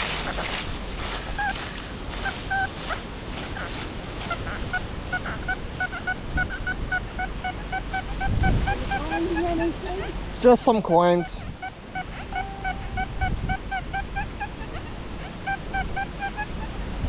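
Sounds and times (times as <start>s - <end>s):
wind noise on microphone: 0.0s - 10.4s, 11.3s - 17.0s
metal detector beeping: 12.2s - 13.3s.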